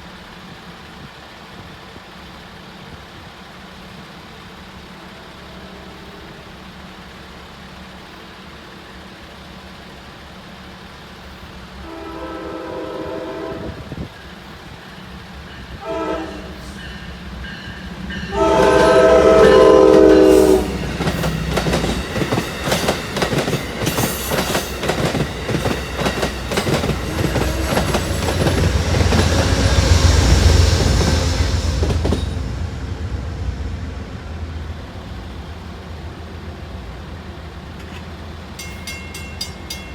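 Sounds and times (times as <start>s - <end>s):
passing train rumble: 0.0s - 39.9s
train horn blasts: 11.8s - 14.1s, 15.7s - 17.0s, 18.1s - 21.2s
train wheels clickety-clack: 13.6s - 32.7s, 37.8s - 39.9s.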